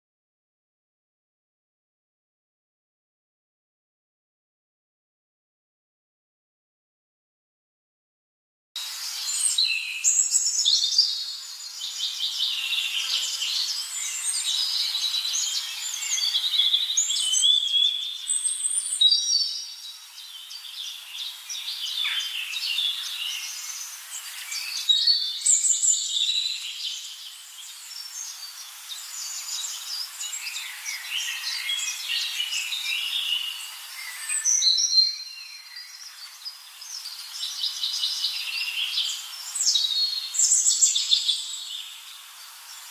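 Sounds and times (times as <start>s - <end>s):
birds chirping in chorus: 8.8s - 42.9s.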